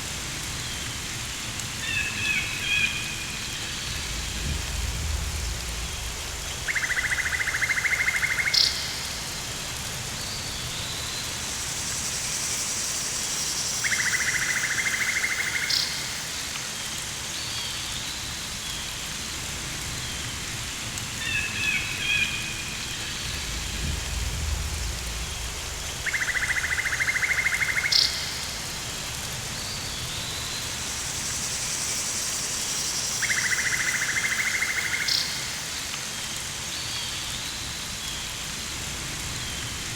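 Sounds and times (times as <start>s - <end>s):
rain hissing: 0.0s - 39.9s
low rumble: 3.6s - 7.4s, 23.1s - 26.6s.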